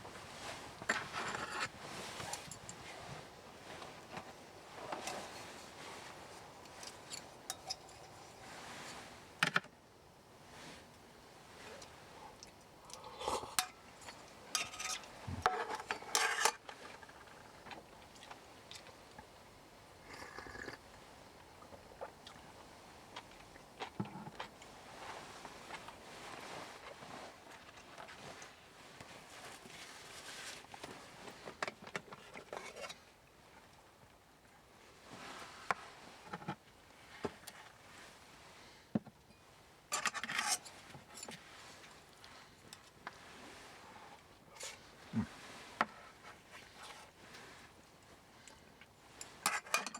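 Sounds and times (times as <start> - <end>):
metal cookware clinking: 7.1 - 8.4, 13.6 - 16.5.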